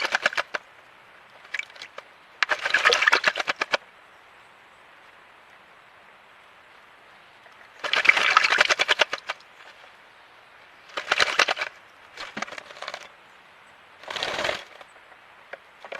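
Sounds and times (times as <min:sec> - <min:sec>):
wings fluttering: 0:00.0 - 0:00.7, 0:01.4 - 0:03.8, 0:07.5 - 0:09.9, 0:10.8 - 0:13.2, 0:14.0 - 0:15.0
birds splashing in water: 0:00.0 - 0:03.9, 0:07.4 - 0:10.1, 0:10.7 - 0:13.2, 0:14.0 - 0:15.9.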